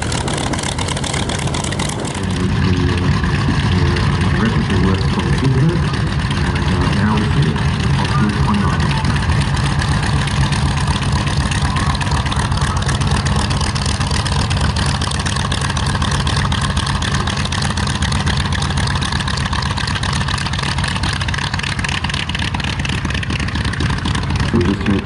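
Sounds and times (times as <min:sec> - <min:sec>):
piston aircraft engine droning: 0:00.0 - 0:25.0.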